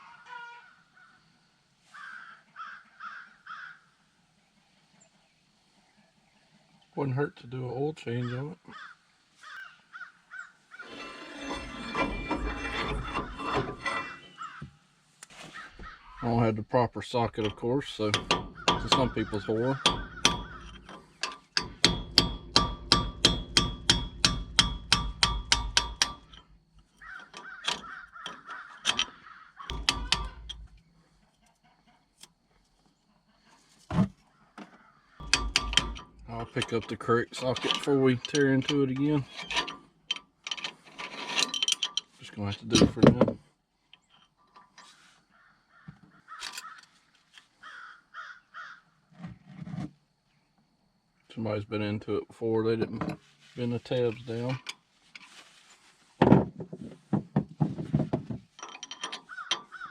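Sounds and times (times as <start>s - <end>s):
crow cawing: 2.0s - 3.9s, 8.7s - 10.9s, 27.0s - 29.7s, 47.6s - 48.9s
hammer clanging on steel: 10.8s - 14.5s, 17.3s - 30.8s, 35.2s - 42.1s
dull clunk: 56.2s - 58.5s.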